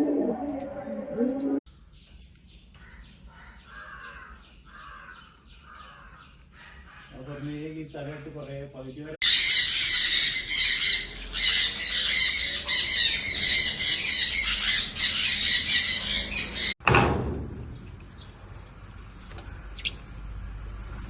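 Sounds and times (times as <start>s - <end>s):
parrots squawking and chattering: 2.8s - 7.5s, 9.2s - 16.8s.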